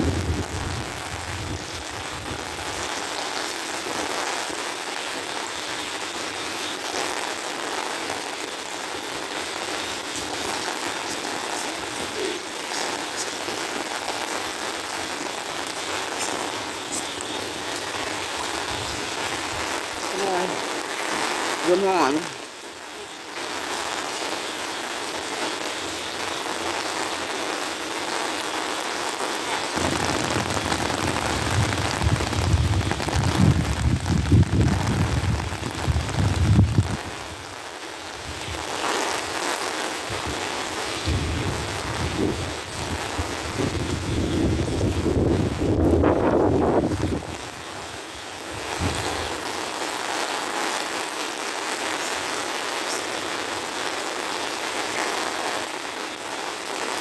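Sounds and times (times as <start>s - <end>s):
wind rumble on microphone: 0.0s - 2.6s, 29.8s - 37.3s, 41.0s - 47.6s, 48.5s - 49.3s
rain on wet pavement: 0.0s - 57.0s.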